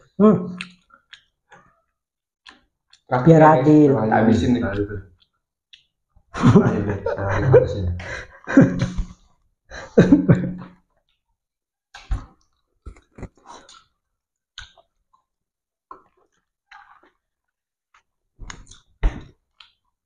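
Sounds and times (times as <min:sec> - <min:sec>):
people chewing snacks: 0:00.6 - 0:03.1, 0:11.9 - 0:15.3, 0:15.9 - 0:19.9
man's voice: 0:06.5 - 0:08.1.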